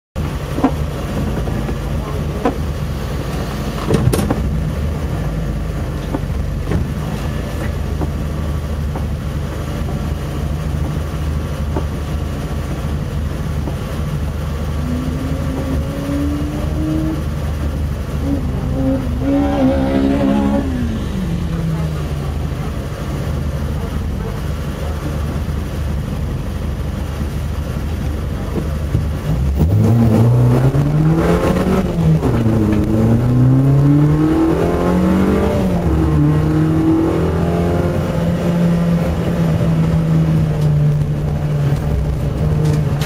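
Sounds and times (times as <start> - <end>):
car engine idling: 0.2 - 43.0
higher tone over engine: 12.9 - 28.6.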